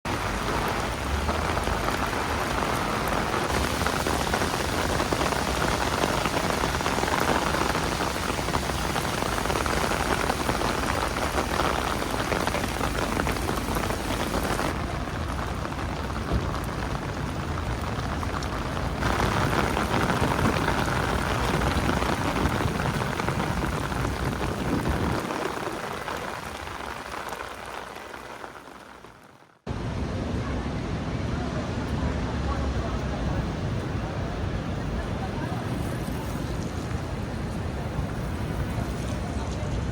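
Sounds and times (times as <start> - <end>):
heavy rain hissing: 0.1 - 30.1.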